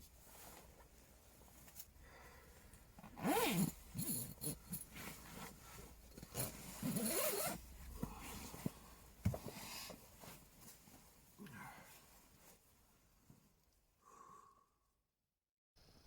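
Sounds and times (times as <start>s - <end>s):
zipper pulled: 3.0s - 5.5s, 6.2s - 7.7s.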